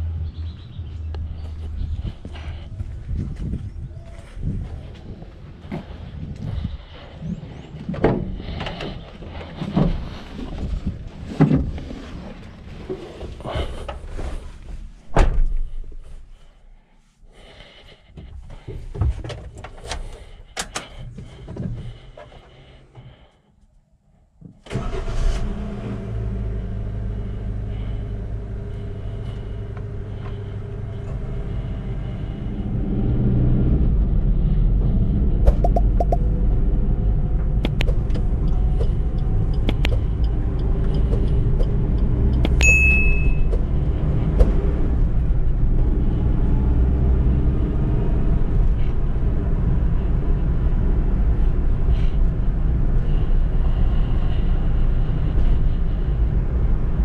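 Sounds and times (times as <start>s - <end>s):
car engine starting and running: 24.6s - 57.0s.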